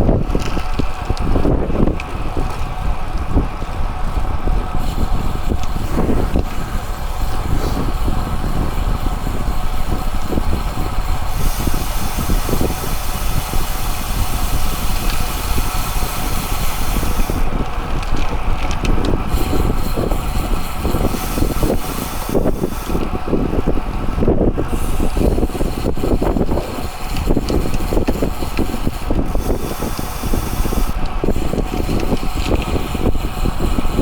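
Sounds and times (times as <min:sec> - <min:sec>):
wind over microphone: 0:00.0 - 0:34.0
bright hiss: 0:04.8 - 0:17.5, 0:19.3 - 0:23.1, 0:24.7 - 0:33.8.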